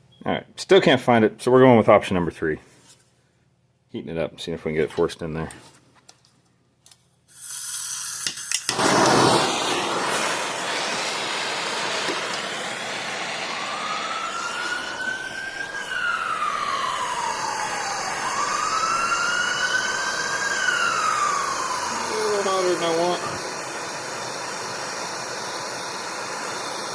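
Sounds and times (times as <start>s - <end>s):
heating tool blowing hiss: 7.3s - 26.9s
siren wailing: 12.7s - 23.8s.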